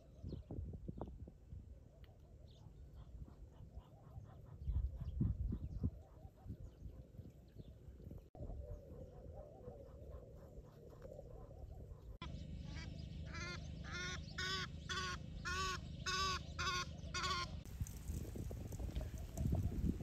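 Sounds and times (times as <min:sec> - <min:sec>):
bird calling: 0:08.4 - 0:17.7.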